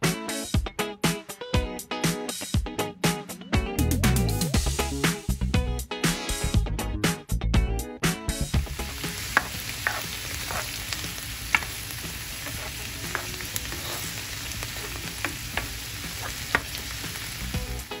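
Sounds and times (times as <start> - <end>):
food sizzling in oil: 8.6 - 18.0
plastic spoon scraping a pan: 9.1 - 16.8.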